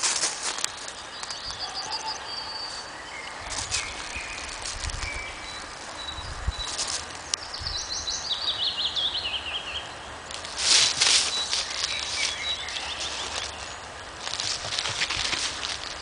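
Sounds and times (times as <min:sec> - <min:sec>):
loud rustle: 0:00.0 - 0:01.3, 0:03.4 - 0:07.4, 0:10.3 - 0:16.0
songbird singing: 0:00.6 - 0:16.0.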